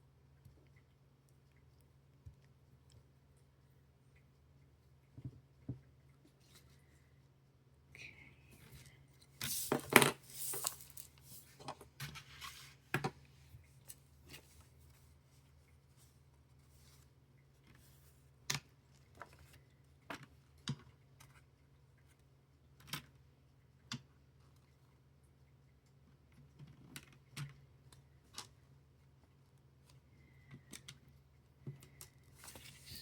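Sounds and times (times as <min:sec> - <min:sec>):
plastic bricks rattling: 0:09.5 - 0:11.8.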